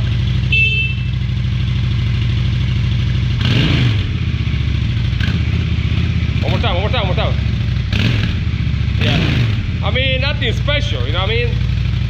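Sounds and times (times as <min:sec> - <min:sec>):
motorcycle engine idling and revving: 0:00.0 - 0:12.0
short high beep: 0:00.4 - 0:01.2.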